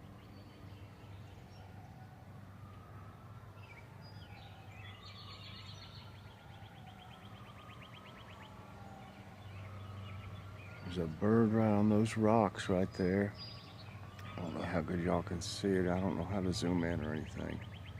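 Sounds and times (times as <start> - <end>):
birds chirping: 0.0 - 17.9
rapid bird trill: 17.0 - 17.9.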